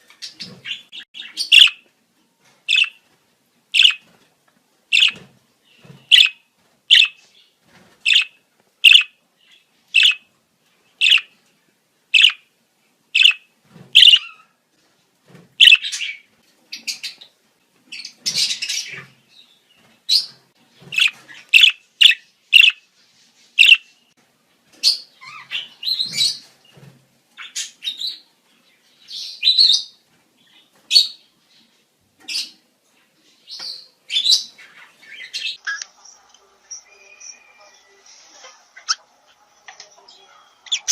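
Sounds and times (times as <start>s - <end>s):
budgerigars chatter: 0.2s - 1.8s, 2.7s - 3.0s, 3.8s - 4.0s, 4.9s - 5.2s, 6.1s - 7.2s, 8.1s - 9.1s, 10.0s - 10.2s, 11.0s - 11.3s, 12.2s - 12.4s, 13.2s - 13.4s, 14.0s - 14.3s, 15.6s - 16.2s, 20.9s - 22.8s, 23.6s - 23.8s
budgerigars chirping: 0.3s - 1.8s, 2.7s - 3.0s, 3.8s - 4.1s, 4.9s - 5.2s, 6.0s - 7.2s, 8.1s - 9.2s, 9.9s - 10.3s, 11.0s - 11.3s, 12.2s - 12.4s, 13.2s - 14.4s, 15.6s - 16.2s, 20.9s - 22.8s, 23.6s - 23.9s, 24.9s - 26.4s, 40.7s - 40.9s.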